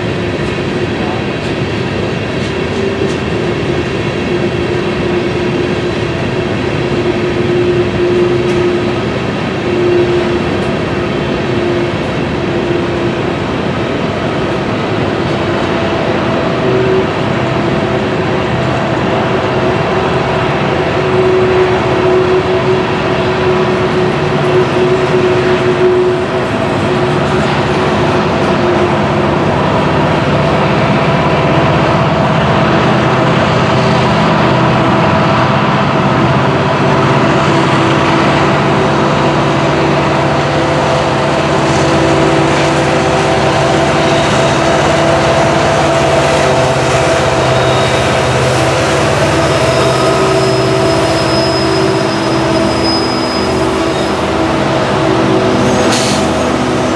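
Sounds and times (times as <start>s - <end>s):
diesel locomotive drone: 0.0s - 56.9s
freight cars rolling over rails: 0.0s - 56.9s
faint high squeal: 49.6s - 54.4s.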